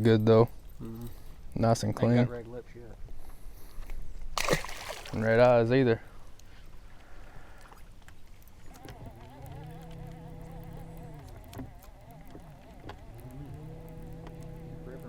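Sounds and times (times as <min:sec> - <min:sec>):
electric trolling motor humming: 0:08.6 - 0:15.0.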